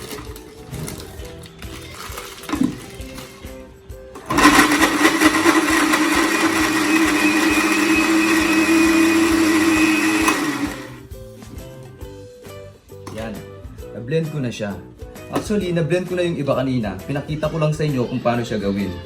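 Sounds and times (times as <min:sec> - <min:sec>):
electric blender grinding: 0:00.0 - 0:03.5, 0:04.1 - 0:11.1.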